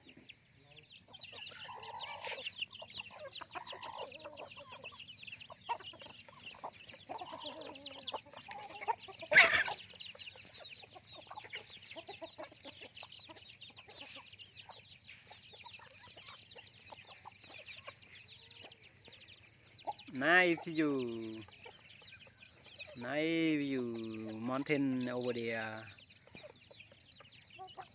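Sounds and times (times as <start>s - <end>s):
chickens peeping and clucking: 0.0s - 27.9s.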